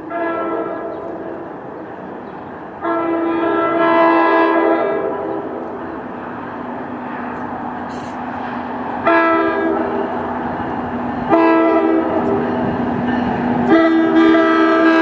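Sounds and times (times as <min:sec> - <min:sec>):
locomotive air horn blasts: 0:00.0 - 0:01.4, 0:02.8 - 0:05.6, 0:09.0 - 0:10.0, 0:11.3 - 0:12.4, 0:13.6 - 0:15.0
moving train rumble: 0:00.0 - 0:15.0.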